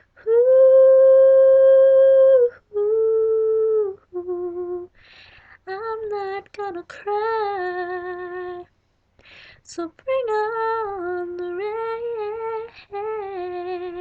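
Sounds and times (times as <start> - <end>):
woman singing unaccompanied: 0.0 - 5.0, 5.6 - 8.7, 9.6 - 14.0
woman breathing in: 5.0 - 5.6, 9.2 - 9.6.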